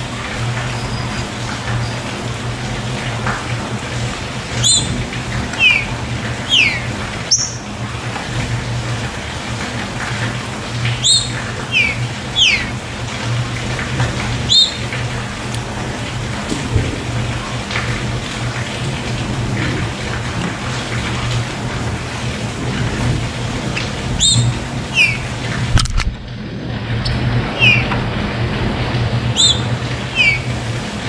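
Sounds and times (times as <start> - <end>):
rushing water: 0.0 - 31.0
bird singing clear whistles: 4.6 - 4.9, 5.6 - 5.9, 6.5 - 7.6, 11.0 - 12.7, 14.5 - 14.8, 24.2 - 25.2, 27.6 - 27.8, 29.4 - 30.5.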